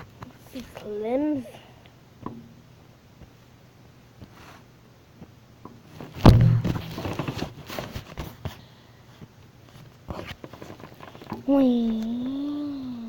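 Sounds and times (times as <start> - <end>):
knocking and rustling: 5.6 - 8.6
loud thump: 6.1 - 7.1.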